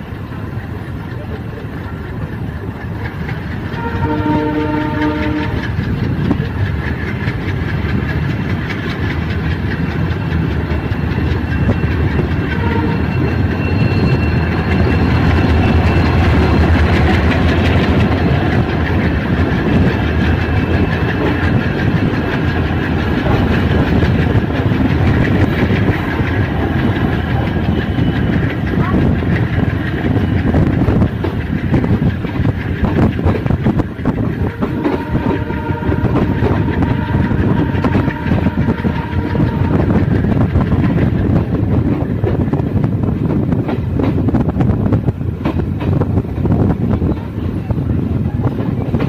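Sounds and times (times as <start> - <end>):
train wheels rumbling on rails: 0.0 - 49.0
train horn: 3.7 - 5.8, 12.2 - 16.6, 34.4 - 40.2.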